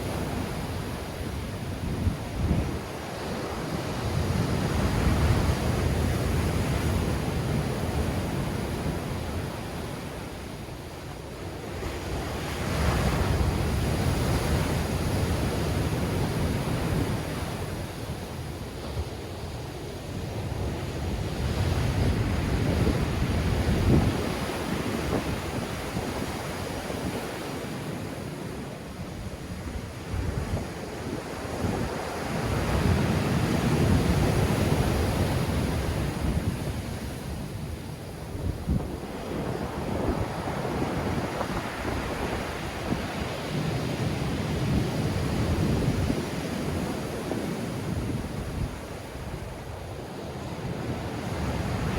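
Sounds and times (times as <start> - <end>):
wind buffeting microphone: 0.0 - 9.7, 18.8 - 27.4, 29.1 - 49.8
waves breaking on shore: 0.0 - 51.9.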